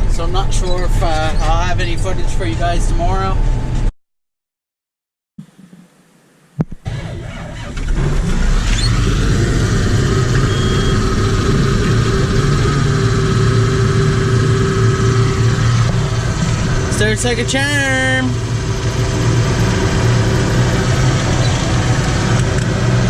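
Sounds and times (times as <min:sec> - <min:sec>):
diesel engine cranking and idling: 0:06.8 - 0:23.0.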